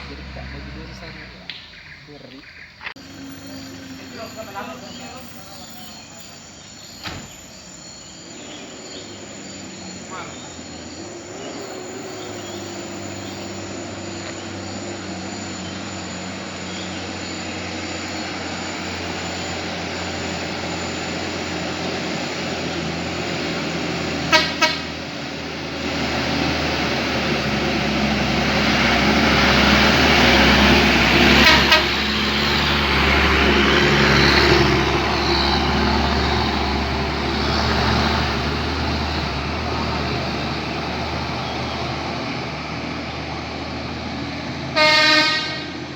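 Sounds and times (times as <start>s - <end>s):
truck engine running: 0.0s - 45.9s
truck horn toots: 24.1s - 25.3s, 29.3s - 32.8s, 44.6s - 45.9s.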